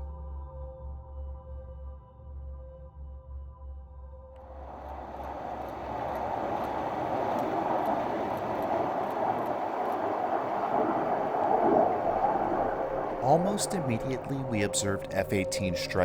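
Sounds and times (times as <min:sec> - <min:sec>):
fighter jet passing overhead: 0:04.5 - 0:16.0.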